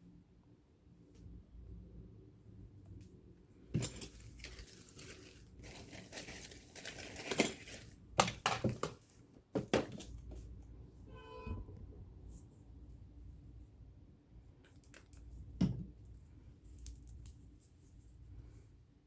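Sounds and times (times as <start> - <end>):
rubbing and crinkling: 3.7 - 10.7, 14.5 - 18.8.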